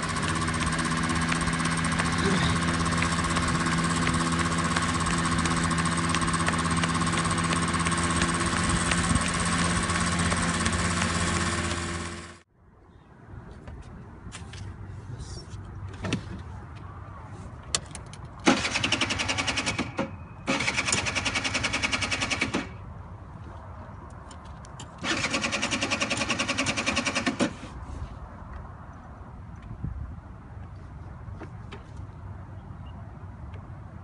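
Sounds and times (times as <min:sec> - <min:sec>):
low rumble of car rolling: 0:00.0 - 0:12.4
small engine running in bursts: 0:00.0 - 0:12.4, 0:18.4 - 0:22.8, 0:25.0 - 0:27.7.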